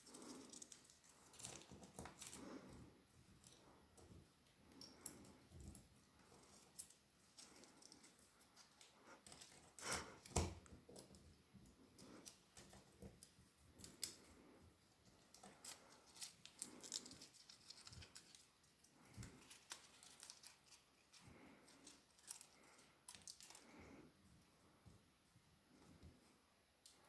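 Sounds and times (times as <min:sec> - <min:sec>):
small objects clicking and tapping: 0:04.6 - 0:05.8, 0:06.4 - 0:14.5, 0:21.8 - 0:23.7.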